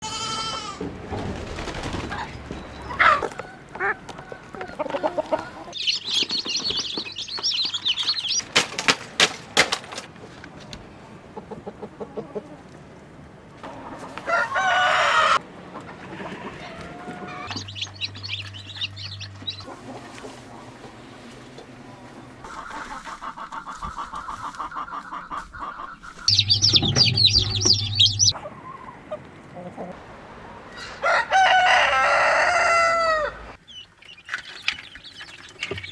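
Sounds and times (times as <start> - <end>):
chickens clucking: 0.1 - 35.9
wings flapping: 1.1 - 3.4, 5.8 - 10.1
rooster crowing: 2.9 - 5.7, 14.1 - 15.4, 30.7 - 33.6
high chirping: 5.8 - 8.5, 17.5 - 19.7, 26.3 - 28.4.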